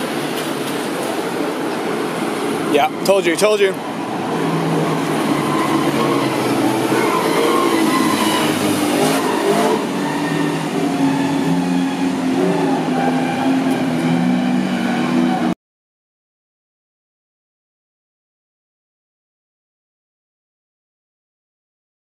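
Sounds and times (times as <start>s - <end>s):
car engines revving: 3.7s - 15.6s.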